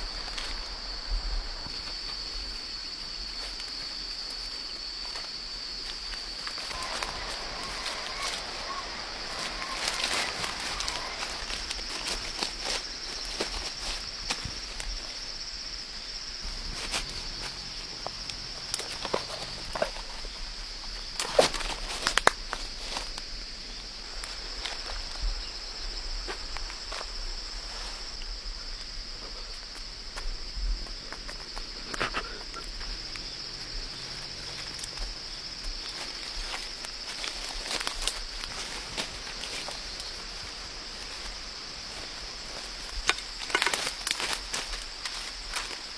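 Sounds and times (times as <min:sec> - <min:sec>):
footsteps: 0:00.0 - 0:15.6, 0:29.6 - 0:45.9
high-pitched insect chorus: 0:00.0 - 0:45.9.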